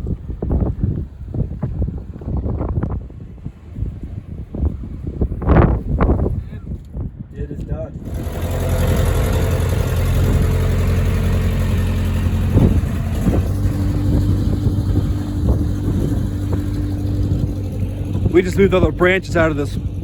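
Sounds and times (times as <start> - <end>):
machine engine running: 8.0 - 20.0.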